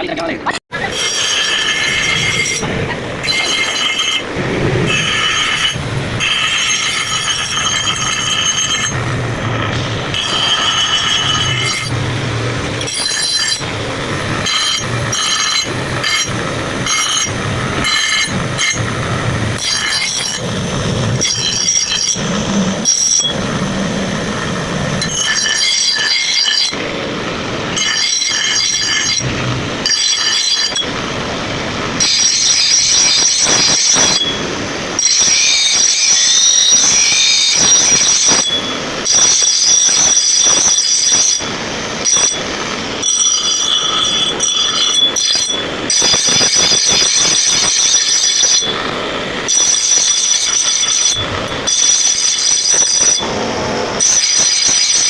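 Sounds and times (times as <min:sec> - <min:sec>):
shrill metallic squeal: 0:00.9 - 0:09.1, 0:19.6 - 0:26.8, 0:32.0 - 0:48.8, 0:54.0 - 0:55.0.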